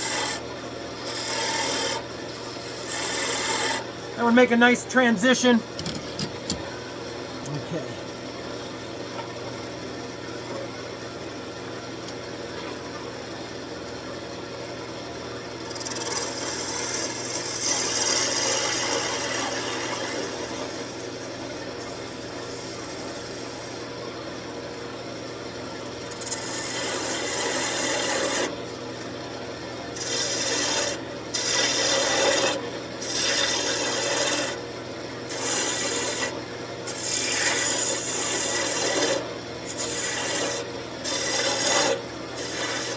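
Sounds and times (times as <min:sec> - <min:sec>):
gouge cutting spinning wood: 0:00.0 - 0:00.4, 0:01.0 - 0:03.9, 0:15.6 - 0:21.0, 0:26.2 - 0:28.5, 0:30.0 - 0:34.6, 0:35.2 - 0:42.9
wood lathe humming: 0:00.0 - 0:00.4, 0:01.0 - 0:04.5, 0:15.8 - 0:21.0, 0:26.2 - 0:28.5, 0:30.0 - 0:34.6, 0:35.3 - 0:42.9.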